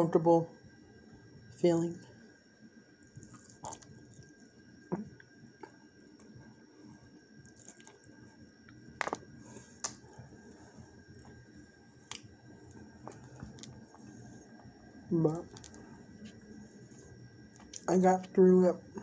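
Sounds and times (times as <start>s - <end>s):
person chewing food: 3.1s - 6.5s, 7.4s - 17.9s.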